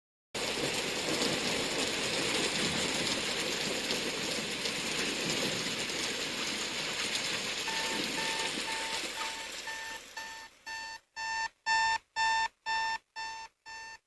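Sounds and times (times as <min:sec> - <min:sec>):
steady rain: 0:00.4 - 0:11.0
electronic beeping: 0:07.7 - 0:14.0.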